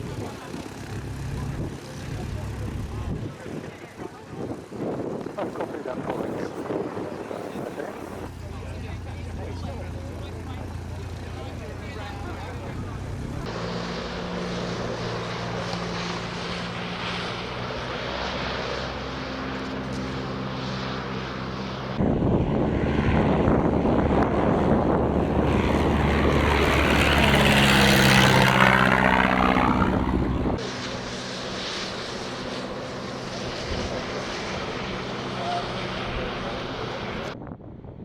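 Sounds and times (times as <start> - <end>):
aircraft passing whoosh: 0.0 - 38.0
propeller aircraft engine: 0.0 - 38.0.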